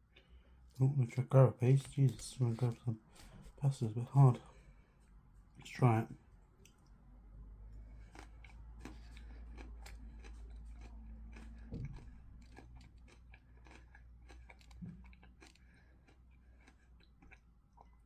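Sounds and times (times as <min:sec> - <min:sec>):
person chewing: 0:07.7 - 0:18.0.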